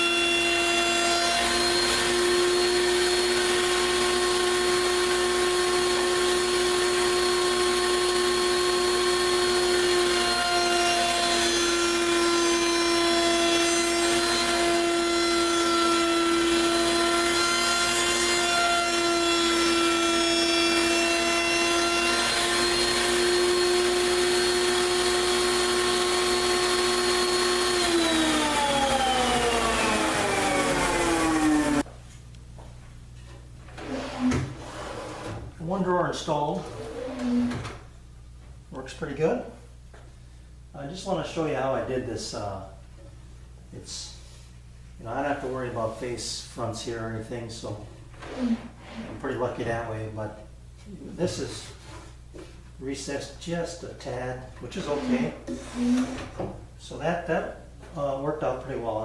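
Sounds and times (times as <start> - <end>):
wood router running: 0.0 - 31.9, 36.6 - 37.7.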